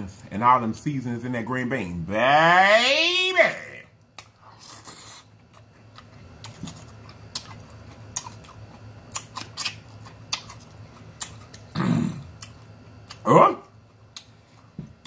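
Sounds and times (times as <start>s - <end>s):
close-up chewing: 4.1s - 13.2s.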